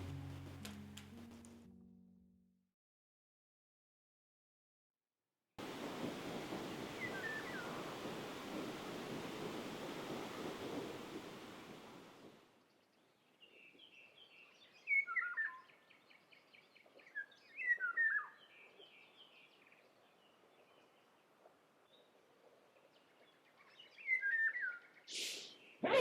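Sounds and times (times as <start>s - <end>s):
songbird singing: 6.6s - 8.6s, 12.6s - 25.8s
short hissing burst: 25.1s - 25.6s.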